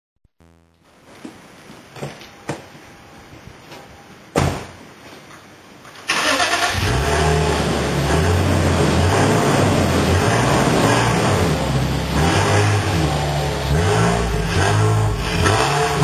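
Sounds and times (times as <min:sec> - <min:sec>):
car engine starting and idling: 0:06.0 - 0:16.0.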